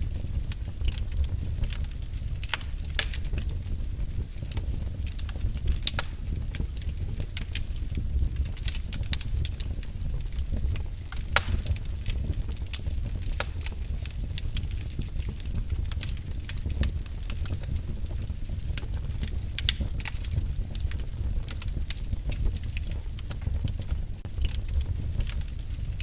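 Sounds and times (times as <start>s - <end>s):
fire crackling in fireplace: 0.0s - 26.0s.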